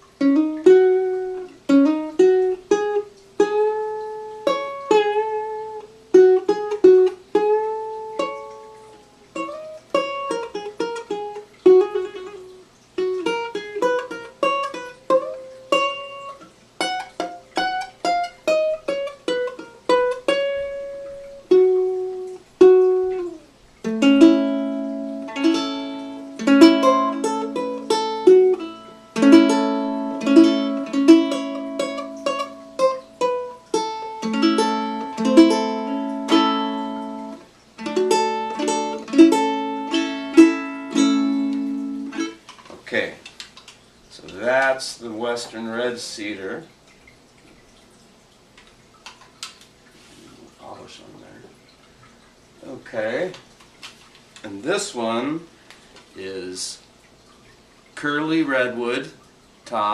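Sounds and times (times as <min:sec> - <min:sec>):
ukulele played fingerstyle: 0:00.0 - 0:42.7.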